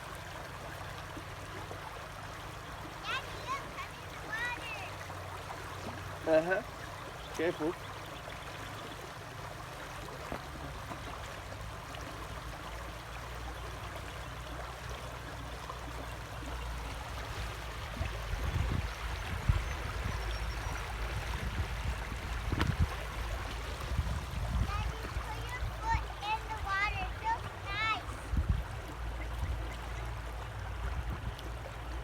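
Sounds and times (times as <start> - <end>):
river water flowing: 0.0 - 32.0
low rumbling bumps: 16.8 - 29.7.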